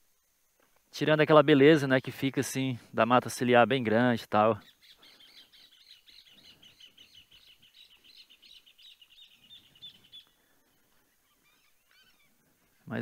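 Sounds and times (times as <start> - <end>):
bird high chirps: 4.5 - 13.0.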